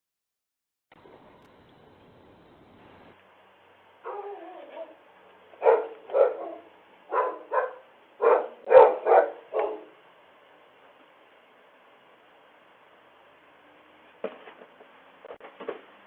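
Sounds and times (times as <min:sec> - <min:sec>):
dog whining: 0:04.0 - 0:05.0, 0:05.6 - 0:09.9
dog barking: 0:04.0 - 0:10.0.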